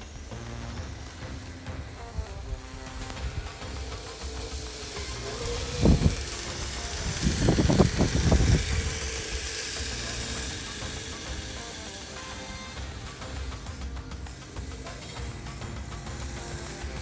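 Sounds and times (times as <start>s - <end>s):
rc vehicle tracks hissing: 0.0s - 17.0s.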